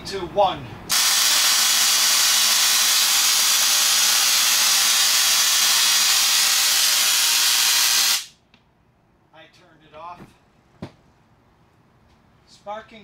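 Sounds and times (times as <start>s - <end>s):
tesla coil rasping hiss: 0.9s - 8.3s.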